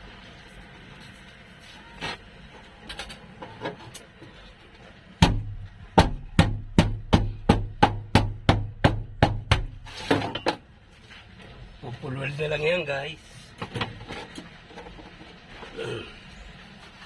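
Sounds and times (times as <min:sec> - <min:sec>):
hammer striking steel sheet: 0:05.2 - 0:10.1.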